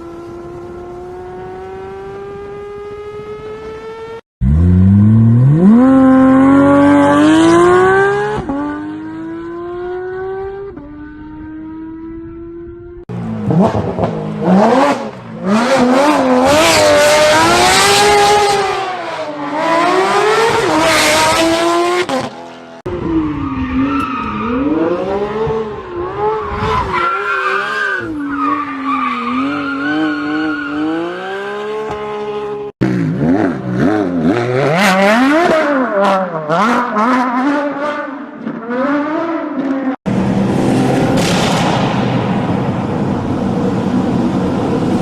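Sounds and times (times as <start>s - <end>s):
loud rushing noise: 40.1s - 45.0s.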